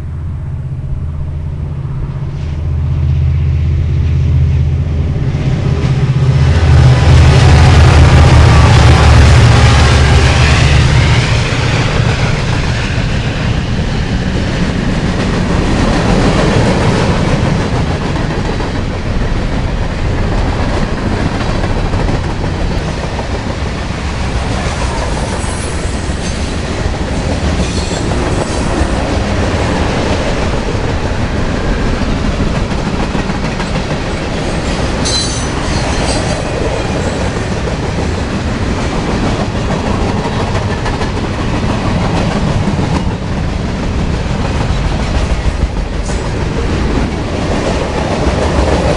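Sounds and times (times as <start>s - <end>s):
model train rumble: 0.0s - 48.9s.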